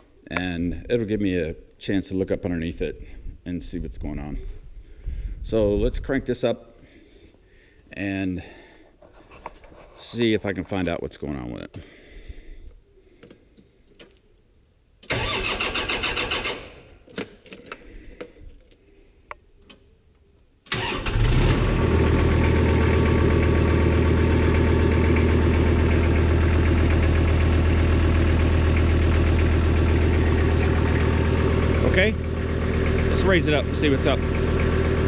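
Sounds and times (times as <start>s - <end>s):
tractor engine cranking: 15.0s - 17.2s, 20.7s - 35.0s
tractor engine idling: 21.8s - 35.0s.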